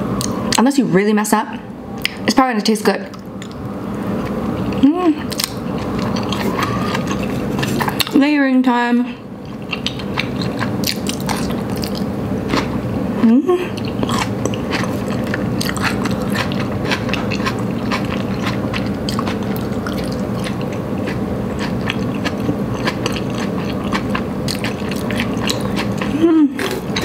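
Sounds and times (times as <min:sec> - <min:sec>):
chewing noodles: 0:04.2 - 0:08.2, 0:09.4 - 0:12.7, 0:13.8 - 0:27.0
person humming: 0:04.8 - 0:05.3, 0:13.2 - 0:13.8, 0:26.1 - 0:26.7.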